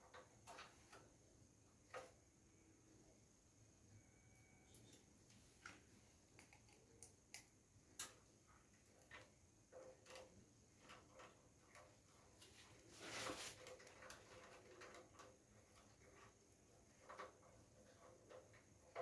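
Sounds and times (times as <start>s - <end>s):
clicks and taps of tools: 6.4s - 8.2s
scrape: 12.4s - 13.9s.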